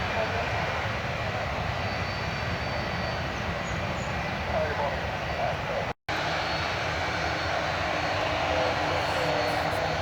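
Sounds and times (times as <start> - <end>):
airliner engines running: 0.0 - 10.0.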